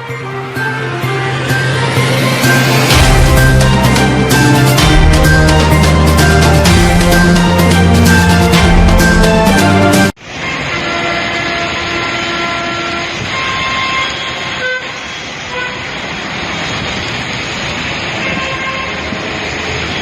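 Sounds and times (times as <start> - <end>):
road traffic: 0.0 - 20.0
heavy rain falling: 2.5 - 12.4, 13.2 - 20.0
vehicle horns honking: 10.4 - 16.0, 18.2 - 19.2.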